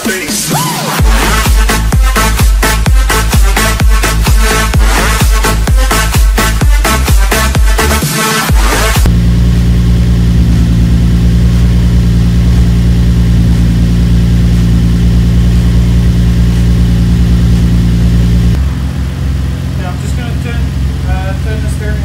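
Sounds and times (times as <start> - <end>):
electronic dance music: 0.0 - 9.2
car engine idling: 1.0 - 22.0.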